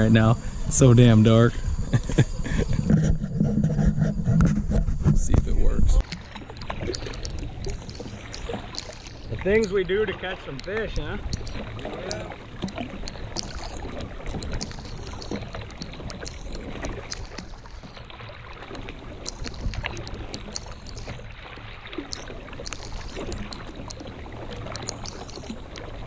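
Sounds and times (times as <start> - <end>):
steady low rumble: 0.0 - 18.2
water lapping against kayak hull: 0.0 - 26.0
small knocks and clicks: 4.3 - 9.8, 10.5 - 18.0, 18.7 - 21.2, 22.0 - 26.0.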